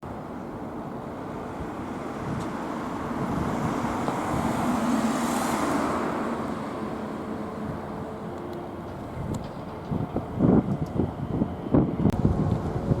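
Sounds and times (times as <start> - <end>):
road traffic rumble: 0.0 - 13.0
vehicle passing: 0.8 - 10.3.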